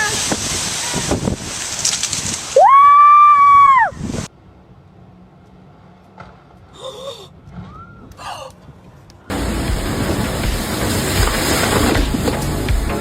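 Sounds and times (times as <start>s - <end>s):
wind noise: 0.0s - 4.3s, 7.5s - 13.0s.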